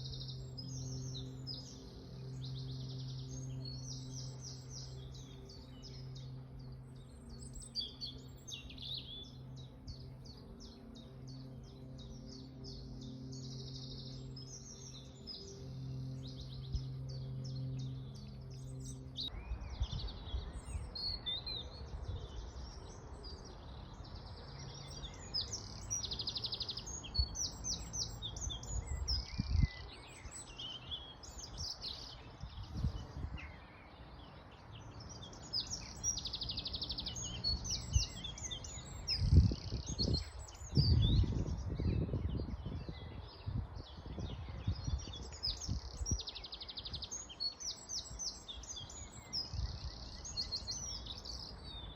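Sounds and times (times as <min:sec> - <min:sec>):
low hum: 0:00.0 - 0:20.9
songbirds chirping and trilling: 0:00.0 - 0:51.9.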